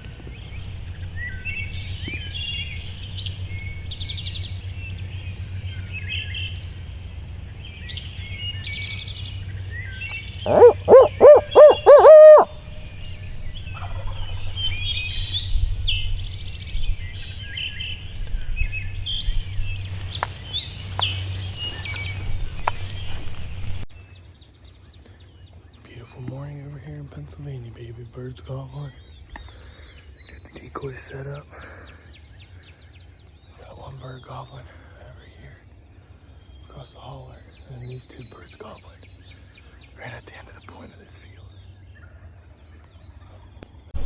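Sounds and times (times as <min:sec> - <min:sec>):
loud hooting pitched notes: 0:00.0 - 0:14.6
wild turkeys gobbling: 0:00.0 - 0:15.4, 0:17.1 - 0:23.8
songbirds chattering: 0:00.0 - 0:23.9, 0:24.9 - 0:44.0.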